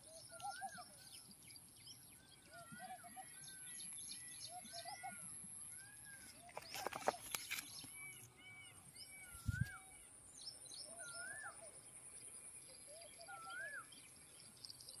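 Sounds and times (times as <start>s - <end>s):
birds whistling: 10.8s - 11.8s, 12.9s - 14.0s.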